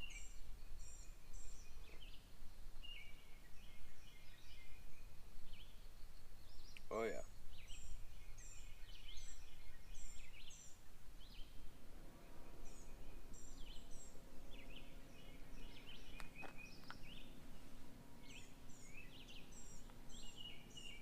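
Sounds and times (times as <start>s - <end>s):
faint low hum: 0.0s - 21.0s
songbirds singing: 0.0s - 21.0s
sharp clicks: 16.2s - 17.1s.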